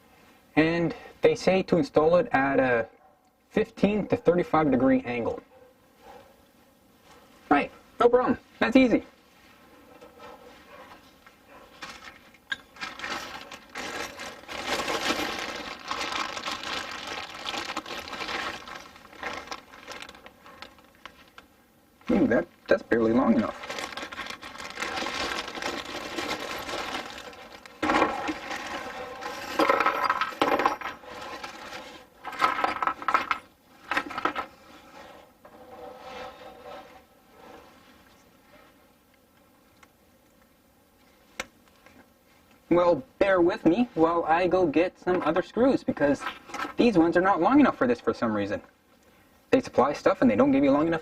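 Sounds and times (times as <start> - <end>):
rustling and crinkling: 7.0 - 7.6, 8.5 - 42.7, 45.1 - 47.0
metal screws clinking and rattling: 27.8 - 34.3
scraping: 33.9 - 38.6.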